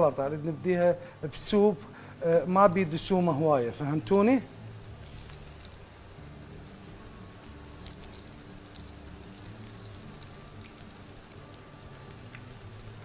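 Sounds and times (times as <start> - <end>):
eggplant sizzling in oil: 3.0 - 13.0
small crackles and pops: 12.1 - 13.0.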